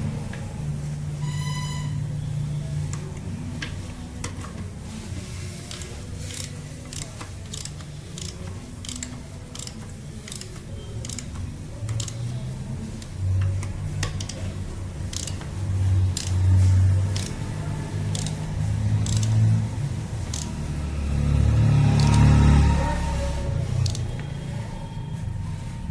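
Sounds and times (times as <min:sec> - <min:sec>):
metallic clicks of hand tools: 0:15.1 - 0:17.5, 0:19.0 - 0:19.5.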